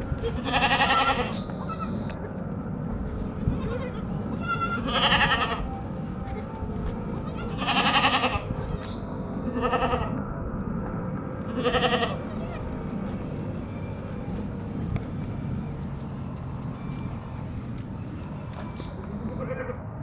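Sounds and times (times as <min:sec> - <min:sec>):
steady low rumble: 0:00.0 - 0:20.0
baby goats bleating: 0:00.2 - 0:02.2, 0:03.4 - 0:05.7, 0:07.2 - 0:10.2, 0:11.5 - 0:12.8, 0:18.5 - 0:19.8.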